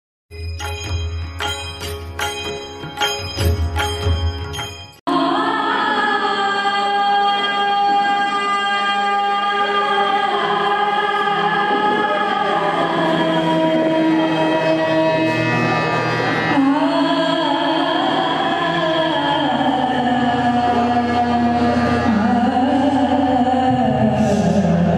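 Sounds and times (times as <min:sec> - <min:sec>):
woman singing: 0:05.1 - 0:15.4, 0:16.5 - 0:24.9.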